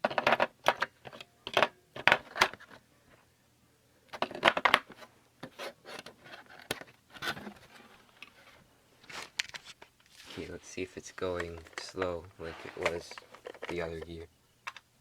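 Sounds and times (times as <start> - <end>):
toy clicking and plastic rattling: 11.2 - 14.9.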